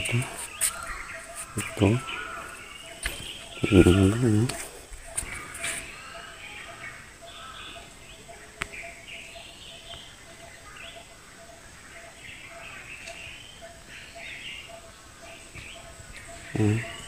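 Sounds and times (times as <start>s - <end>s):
birds chirping: 0.0s - 17.0s
repeated low notes: 3.0s - 4.7s.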